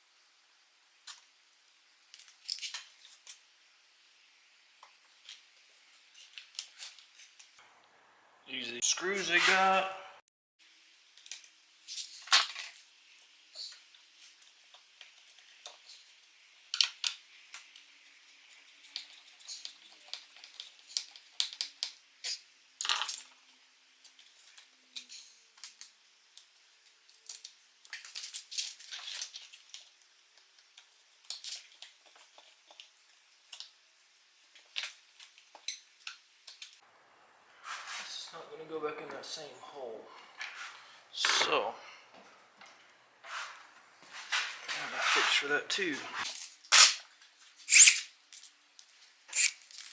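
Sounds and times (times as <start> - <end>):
screws and hand tools clinking: 47.7 - 48.1, 49.3 - 49.9.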